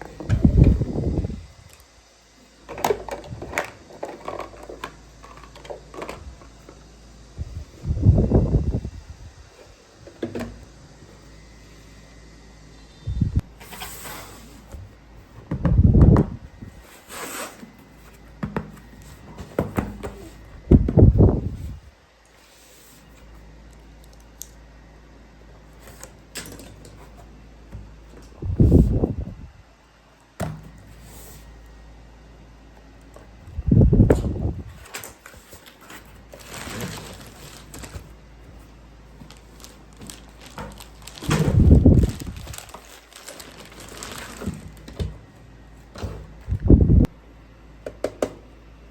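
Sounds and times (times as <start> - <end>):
plastic clatter: 2.7 - 6.5.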